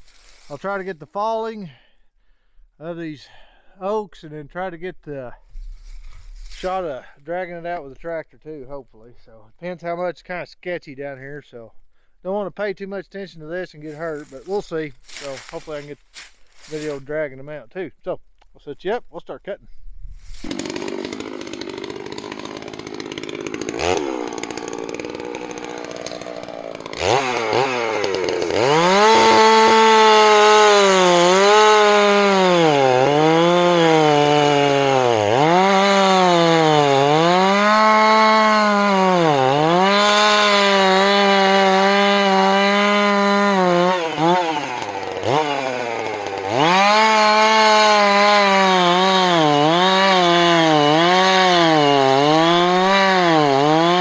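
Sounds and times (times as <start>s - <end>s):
chainsaw cutting wood: 13.9s - 17.0s, 20.2s - 54.0s.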